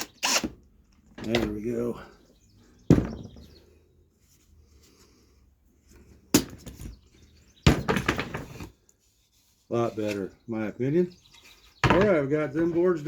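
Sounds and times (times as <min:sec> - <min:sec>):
knocks on a workbench: 0:02.9 - 0:03.5, 0:11.8 - 0:12.2.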